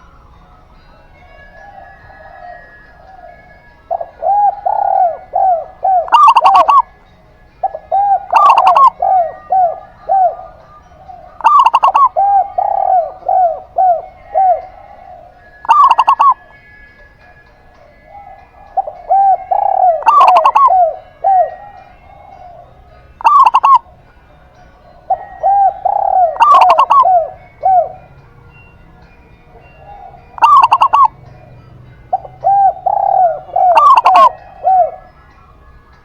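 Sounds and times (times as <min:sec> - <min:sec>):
zebra dove cooing: 0:01.2 - 0:17.2, 0:17.9 - 0:24.0, 0:25.0 - 0:28.1, 0:29.5 - 0:35.2
spotted dove cooing: 0:01.6 - 0:06.9, 0:07.6 - 0:16.7, 0:18.1 - 0:24.0, 0:25.1 - 0:28.1, 0:29.6 - 0:31.2, 0:32.1 - 0:35.1.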